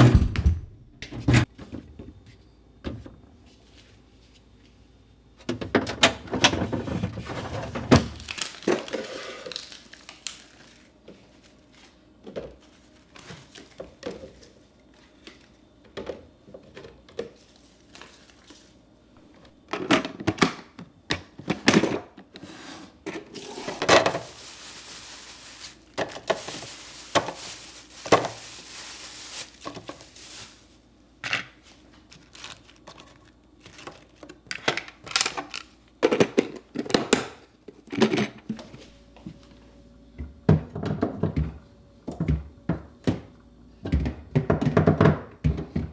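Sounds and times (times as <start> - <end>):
knocks and clunks of items: 0.0 - 3.2, 19.3 - 22.4, 32.2 - 39.5, 40.2 - 45.9
rustling and crinkling: 6.5 - 19.5, 22.4 - 37.0.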